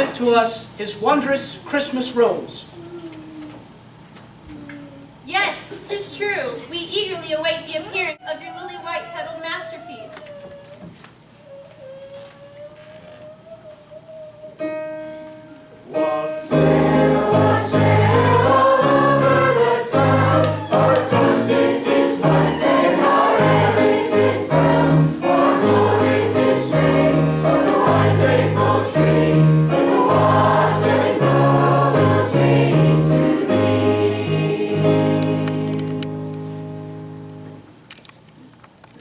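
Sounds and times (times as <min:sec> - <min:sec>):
choir singing with accompaniment: 0:15.8 - 0:36.2.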